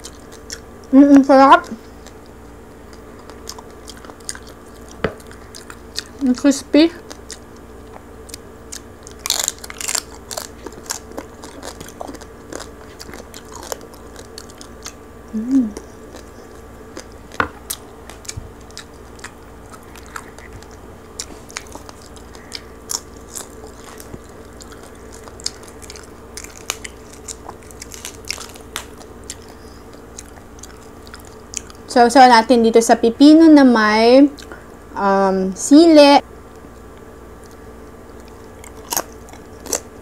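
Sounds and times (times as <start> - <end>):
chewing crispy pork skin: 0.0 - 32.3, 34.2 - 34.8, 36.3 - 40.0
person humming in enjoyment: 15.3 - 16.0.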